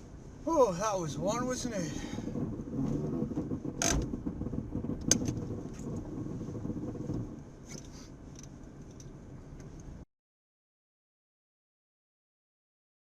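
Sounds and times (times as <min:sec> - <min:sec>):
car engine and road noise: 0:00.0 - 0:10.0
sharp clicks and knocks: 0:02.2 - 0:10.0.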